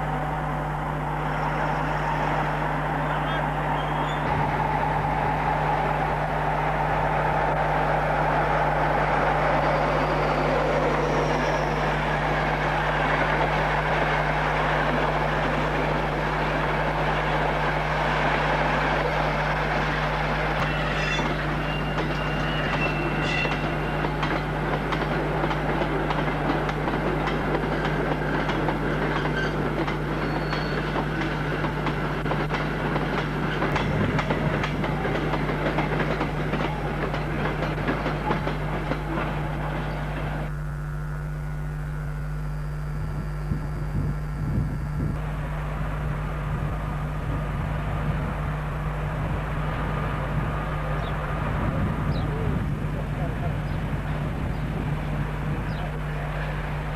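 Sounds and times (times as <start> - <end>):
train rumbling past: 0.0 - 40.6, 43.9 - 56.9
high squeal: 0.4 - 5.9, 8.4 - 12.4, 20.6 - 24.1, 30.2 - 31.0
wheels clicking over rail joints: 21.0 - 40.2.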